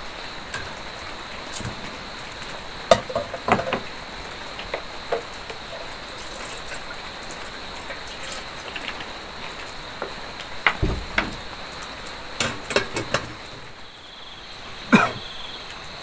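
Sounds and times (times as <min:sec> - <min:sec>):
heavy rain: 0:00.0 - 0:16.0
water pouring into kettle: 0:01.5 - 0:10.4
kettle clinking on gas stove: 0:02.9 - 0:03.8.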